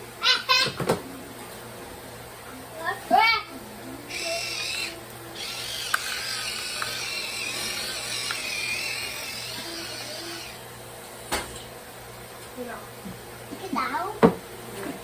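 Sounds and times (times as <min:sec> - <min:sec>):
electric pepper grinder whining: 0:03.5 - 0:10.8.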